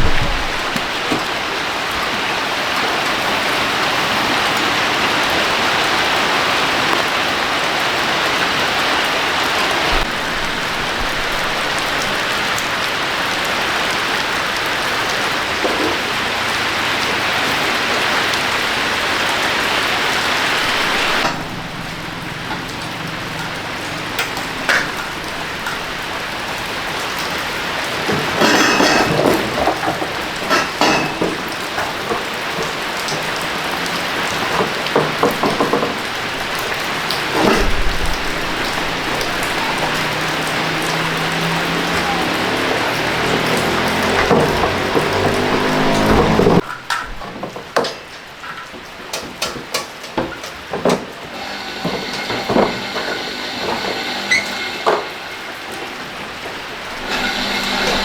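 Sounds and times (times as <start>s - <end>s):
water spray hitting a surface: 20.1s - 47.2s.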